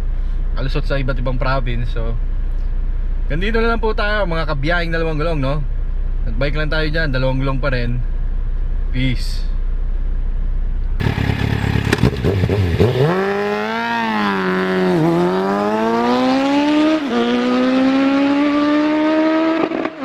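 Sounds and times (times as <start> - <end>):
engine accelerating hard: 11.0 - 20.0.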